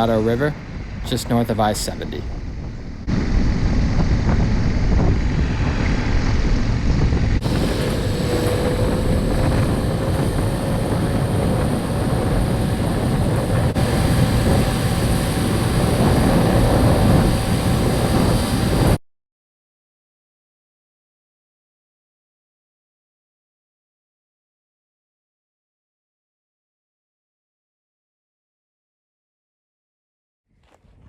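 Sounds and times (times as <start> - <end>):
wind rush on microphone: 0.0 - 19.0
motorcycle engine running: 2.7 - 19.0.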